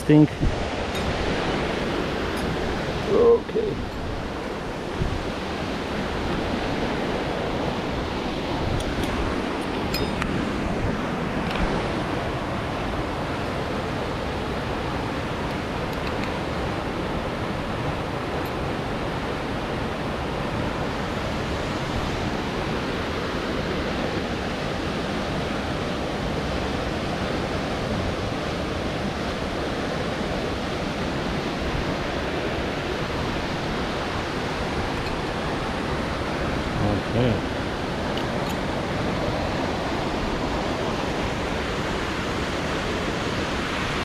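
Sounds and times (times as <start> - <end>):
waterfall rushing: 0.0 - 44.0.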